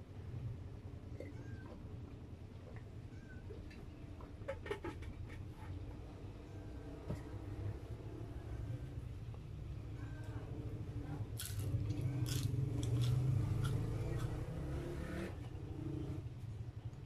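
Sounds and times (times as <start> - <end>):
person chewing food: 11.4 - 14.4.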